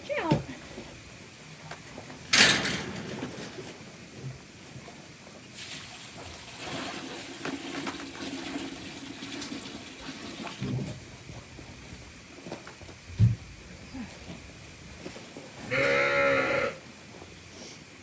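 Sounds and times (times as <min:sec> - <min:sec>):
water pouring and splashing: 0:05.4 - 0:11.6.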